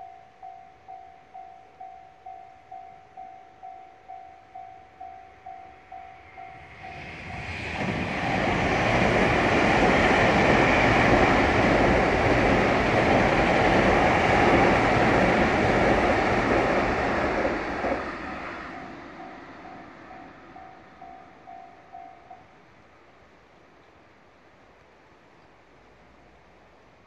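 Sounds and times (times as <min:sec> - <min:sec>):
train wheels rumbling on bridge: 0:05.5 - 0:22.3.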